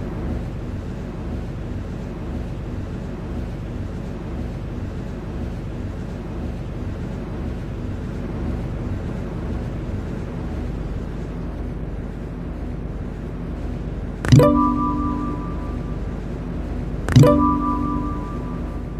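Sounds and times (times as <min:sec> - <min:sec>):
train interior rumble: 0:00.0 - 0:18.9
electronic chime: 0:14.3 - 0:16.2, 0:17.1 - 0:18.9.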